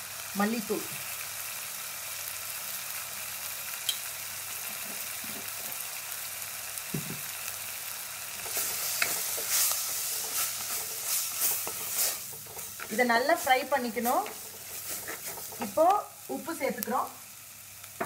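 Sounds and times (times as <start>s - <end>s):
masala sizzling in oil: 0.0s - 18.0s
spatula scraping a pot: 8.4s - 16.0s.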